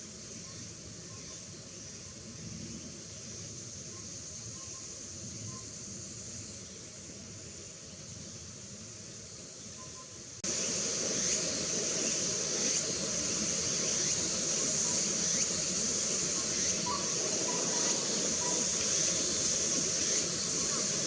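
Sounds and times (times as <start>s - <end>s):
steady hiss: 0.0s - 21.0s
owl whistled notes: 16.8s - 18.6s.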